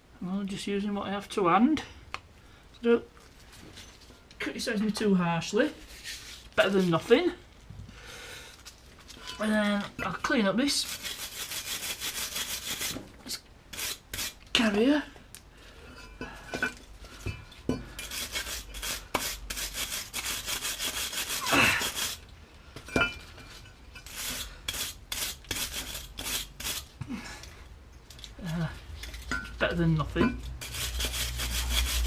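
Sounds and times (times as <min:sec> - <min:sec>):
scrubbing metal by hand: 0:10.8 - 0:13.0, 0:13.7 - 0:14.4, 0:18.0 - 0:22.2, 0:24.0 - 0:26.9, 0:30.6 - 0:32.0.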